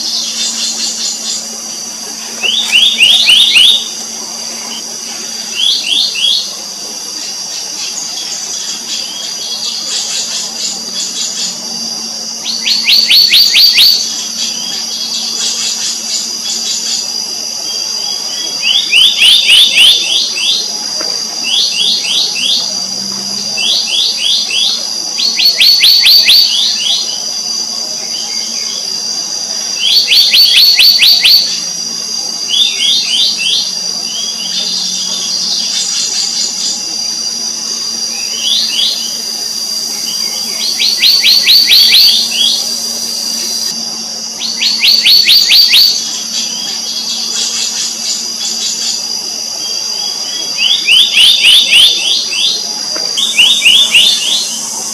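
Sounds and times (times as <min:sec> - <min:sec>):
high insect whine: 0:00.0 - 0:54.9
bird calling high notes: 0:53.2 - 0:54.9.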